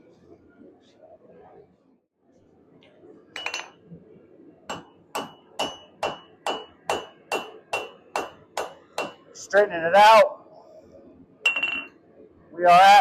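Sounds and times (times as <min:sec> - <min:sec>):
hammer striking iron on anvil: 0:04.7 - 0:09.2.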